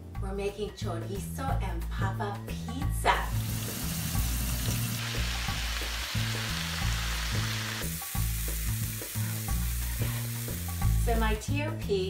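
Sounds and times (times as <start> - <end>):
background music with bass line: 0.0 - 12.0
onions sizzling: 3.3 - 11.3
potato slices sizzling in oil: 3.3 - 11.4.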